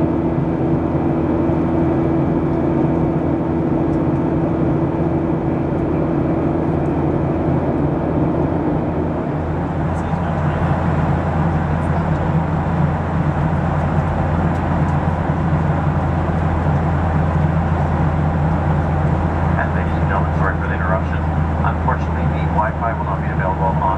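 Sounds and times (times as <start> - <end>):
low engine hum: 0.0 - 23.9.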